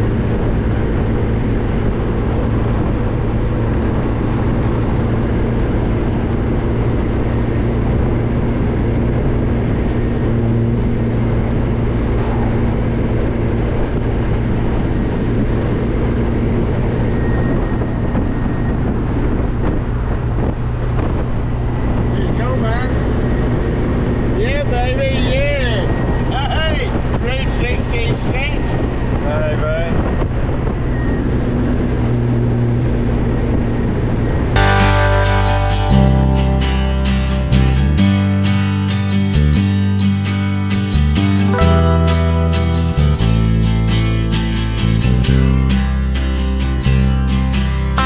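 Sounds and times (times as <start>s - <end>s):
car engine drone: 0.0s - 25.2s, 30.0s - 48.0s
road and wind noise: 0.0s - 34.6s.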